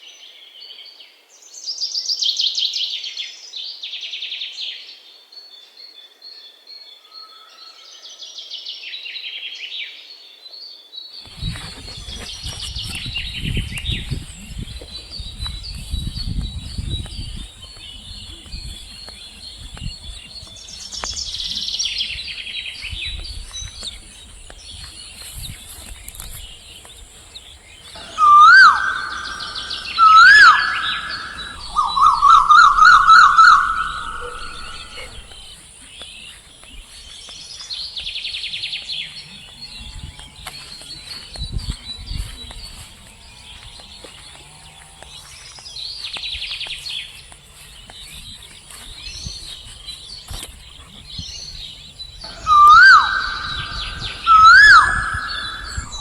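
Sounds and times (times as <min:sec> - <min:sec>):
insect-like hiss: 0:11.2 - 0:44.1
birds chirping and singing: 0:11.2 - 0:56.0
loud whistled bird calls: 0:27.7 - 0:35.6, 0:52.2 - 0:56.0.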